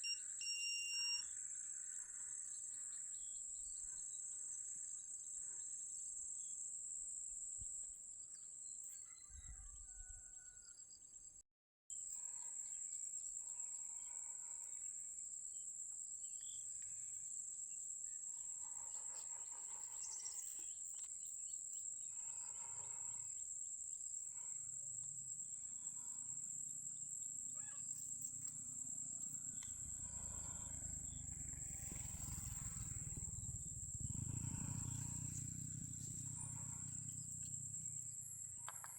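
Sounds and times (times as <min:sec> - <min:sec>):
insects chirring: 0:11.9 - 0:38.9
low rumble: 0:29.4 - 0:38.4.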